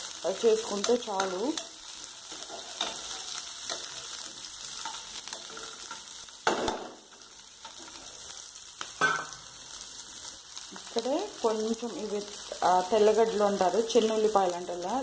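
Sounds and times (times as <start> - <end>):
onions sizzling in oil: 0.0 - 15.0
spoon scraping pan: 0.7 - 6.2.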